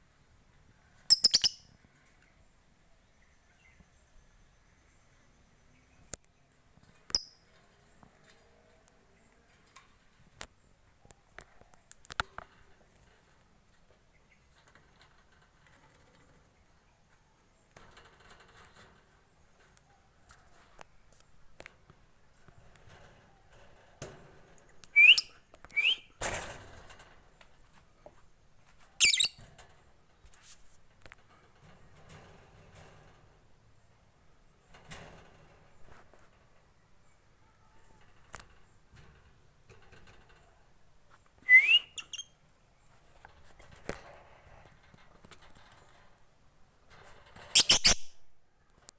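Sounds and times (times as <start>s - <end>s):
lovebird high squeak: 1.1s - 1.6s, 25.0s - 26.1s, 29.0s - 29.4s, 41.5s - 42.3s, 47.6s - 48.2s
small clicks and taps: 11.3s - 12.6s.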